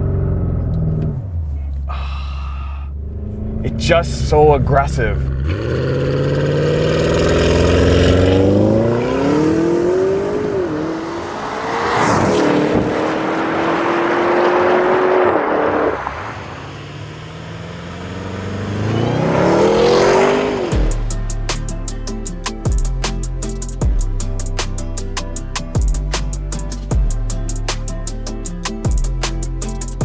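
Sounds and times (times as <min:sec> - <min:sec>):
car engine accelerating hard: 0:02.9 - 0:21.1.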